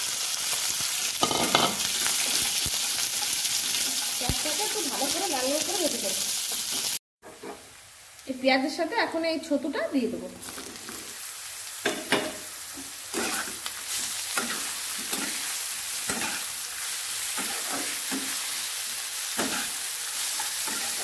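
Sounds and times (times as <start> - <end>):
mushrooms sizzling in oil: 0.0 - 21.0
spatula scraping: 13.1 - 15.5, 16.1 - 16.5, 19.4 - 21.0.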